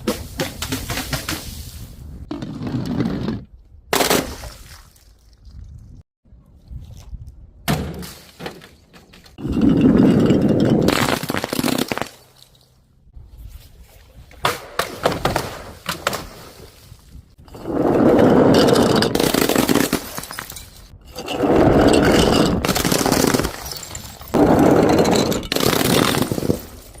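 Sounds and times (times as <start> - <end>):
glass breaking and crunching: 10.4 - 12.7, 19.0 - 20.9, 22.1 - 24.4.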